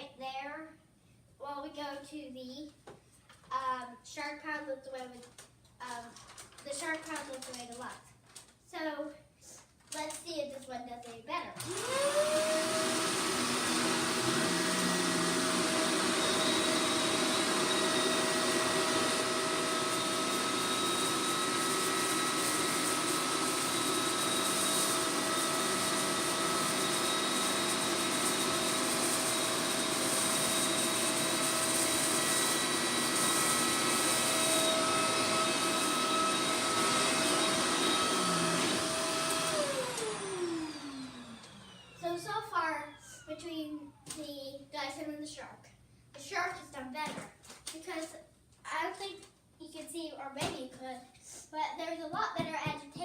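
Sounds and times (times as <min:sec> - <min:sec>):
vacuum cleaner motor whine: 0:11.6 - 0:44.0.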